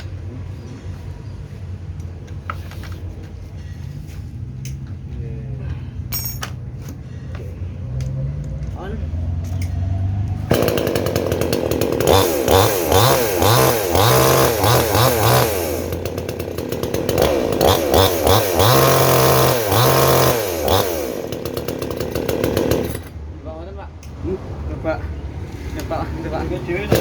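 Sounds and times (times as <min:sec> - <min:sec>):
chainsaw engine revving: 0:09.7 - 0:23.2, 0:26.8 - 0:27.0.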